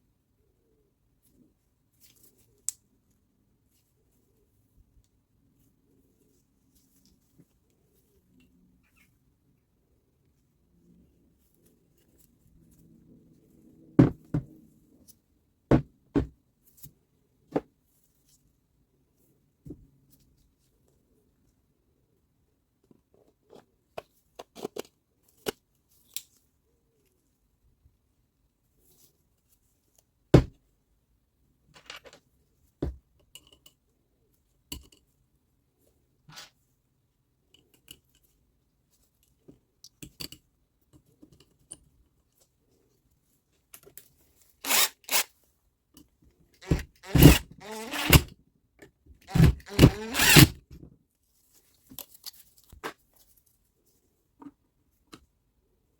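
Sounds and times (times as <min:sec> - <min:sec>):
tools clicking and knocking: 0:46.6 - 0:50.6.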